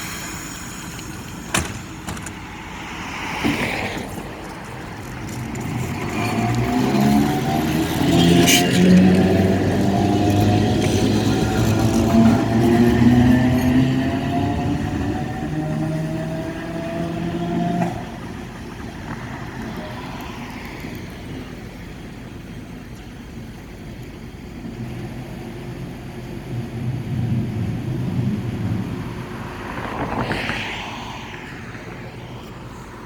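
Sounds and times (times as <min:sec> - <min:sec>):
electric streetcar motor whining: 0:00.0 - 0:03.1, 0:03.7 - 0:30.7
street traffic noise: 0:00.0 - 0:33.0
vehicle passing: 0:02.4 - 0:21.7, 0:27.1 - 0:33.0.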